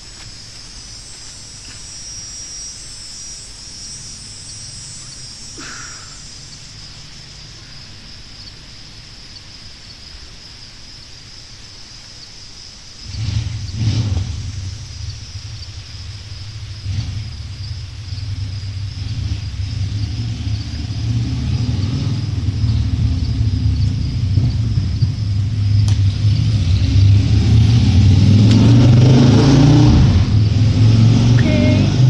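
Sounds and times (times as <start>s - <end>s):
insect chorus: 0.0s - 32.0s
loud low rumble: 13.2s - 32.0s.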